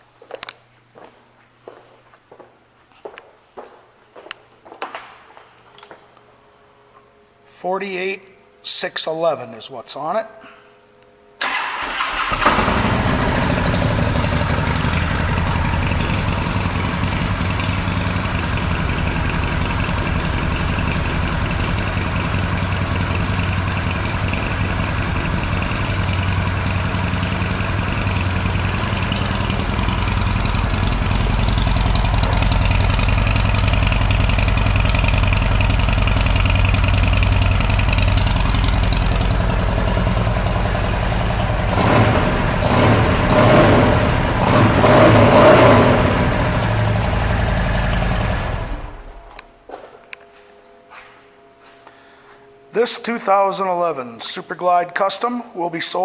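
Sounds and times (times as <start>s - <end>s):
motorcycle engine idling: 12.3s - 49.4s.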